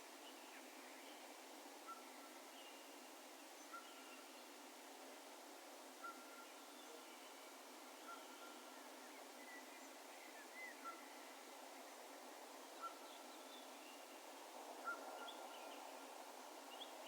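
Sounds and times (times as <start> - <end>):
open-air hiss: 0.0 - 17.0.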